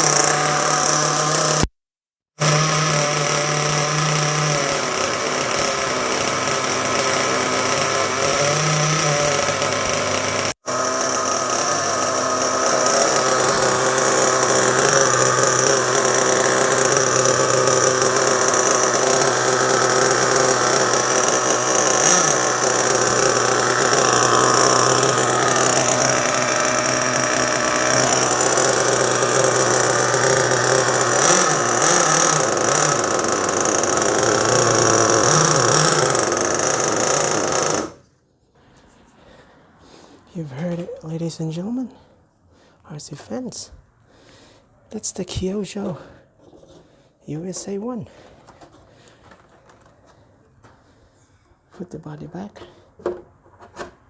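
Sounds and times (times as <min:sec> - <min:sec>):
model engine idling: 0:04.8 - 0:38.0.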